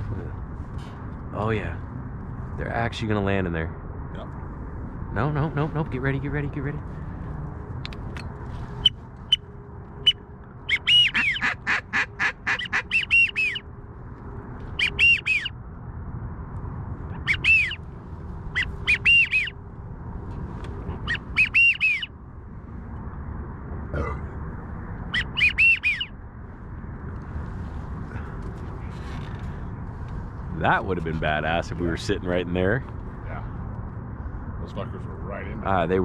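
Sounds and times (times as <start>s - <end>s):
low steady rumble: 0.0s - 36.0s
duck whistles: 10.0s - 13.6s, 14.8s - 15.5s, 17.2s - 17.8s, 18.5s - 19.5s, 21.0s - 22.1s, 25.1s - 26.1s.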